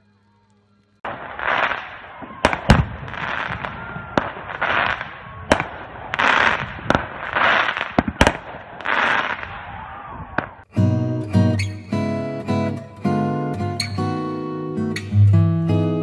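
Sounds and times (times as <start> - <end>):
crackling firework glitter: 0.0 - 9.7.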